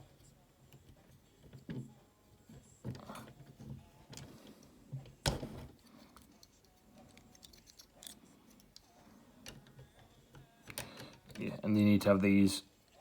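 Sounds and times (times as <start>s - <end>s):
plastic parts clicking and rattling: 5.2s - 11.6s.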